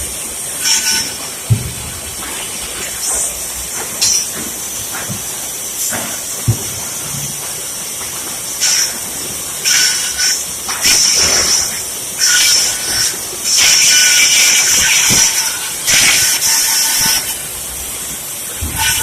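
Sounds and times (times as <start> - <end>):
bandsaw cutting board: 18.6 - 19.0.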